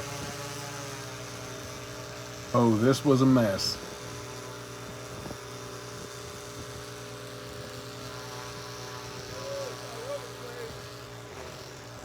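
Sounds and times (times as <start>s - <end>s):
power tool motor humming: 0.0s - 12.0s.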